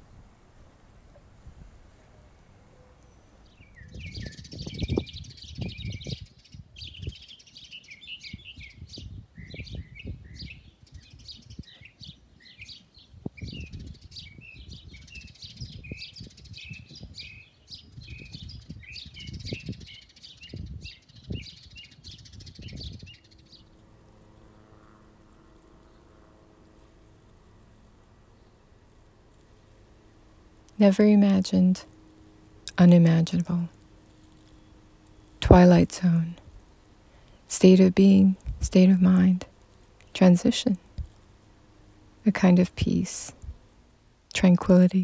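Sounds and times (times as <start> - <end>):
low microphone rumbles: 0.0 - 7.3, 13.2 - 27.7
small birds chirping: 0.6 - 45.0.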